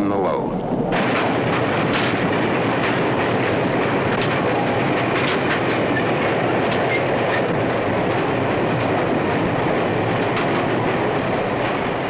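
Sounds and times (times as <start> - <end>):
freight train on rails: 0.0 - 12.0
wheels clacking over rail joints: 0.0 - 12.0.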